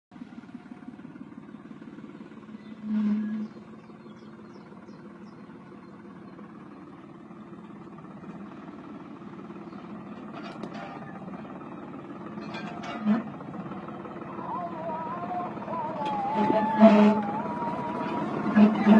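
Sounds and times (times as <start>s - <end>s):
tractor engine running: 0.1s - 18.9s
loud low tone: 14.2s - 18.9s.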